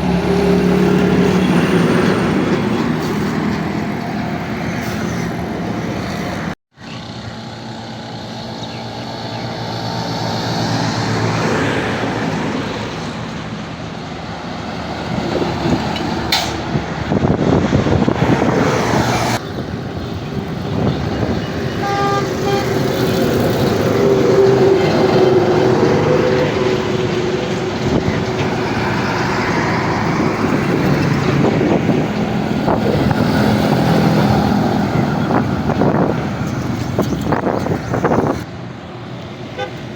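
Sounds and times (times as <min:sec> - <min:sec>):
heavy vehicle engine drone: 0:00.0 - 0:39.9
road traffic noise: 0:00.0 - 0:39.9.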